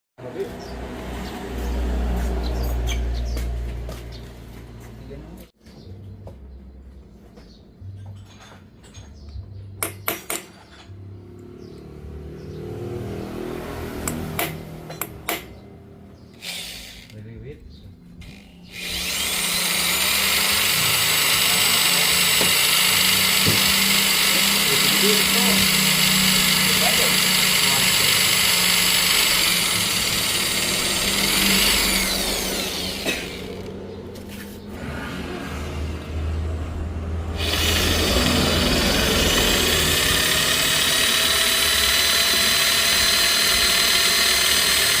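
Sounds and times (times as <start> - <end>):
power tool motor whining: 16.4 - 17.2, 18.2 - 33.9, 37.3 - 45.0
pitched hum: 17.6 - 45.0.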